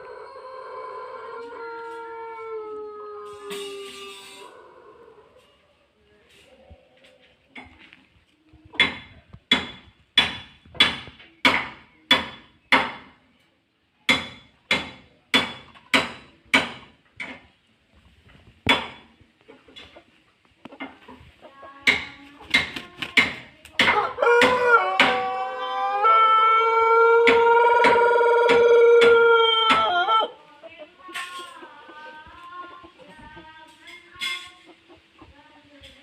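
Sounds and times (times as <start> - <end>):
sharp knocks with metallic ring: 8.8 - 13.1, 14.1 - 17.4.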